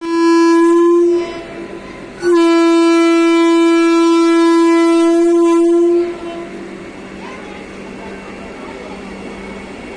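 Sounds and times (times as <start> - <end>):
train horn blasts: 0.0 - 6.8.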